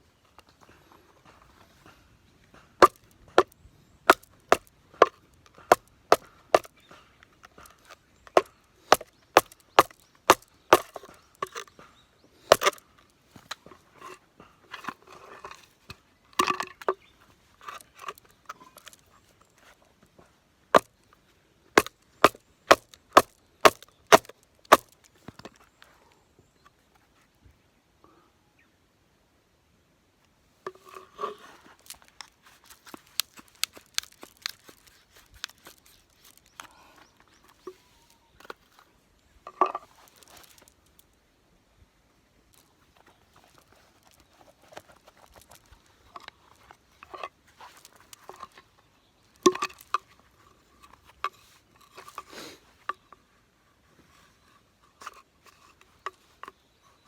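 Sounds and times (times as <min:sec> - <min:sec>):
baton knocking knife through wood: 0:21.8 - 0:25.0
wood cracking: 0:21.8 - 0:25.3, 0:31.2 - 0:36.8.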